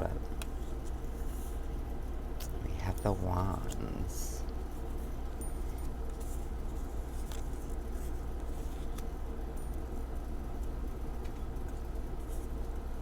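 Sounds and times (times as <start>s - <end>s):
low background hum: 0.0s - 13.0s
cards rustling and clicking: 5.8s - 9.8s.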